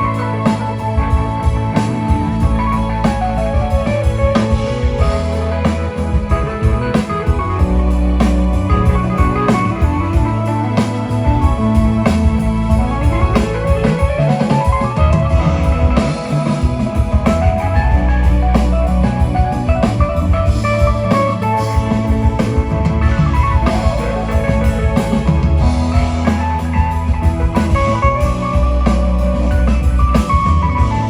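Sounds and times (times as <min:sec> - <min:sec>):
live rock band playing: 0:00.0 - 0:31.0.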